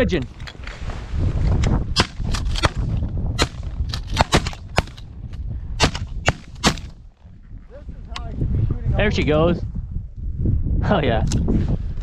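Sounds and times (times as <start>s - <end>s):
wind rumble on microphone: 0.0s - 12.0s
shotgun blasts: 1.9s - 5.0s, 5.8s - 7.0s.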